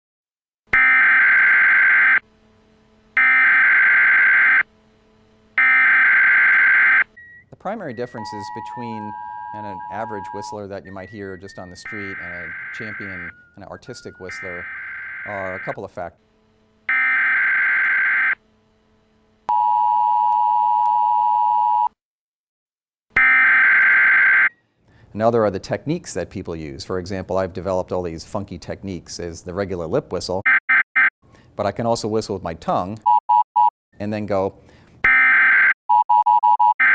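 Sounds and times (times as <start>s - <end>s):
emergency alert beeps: 5.6s - 15.8s.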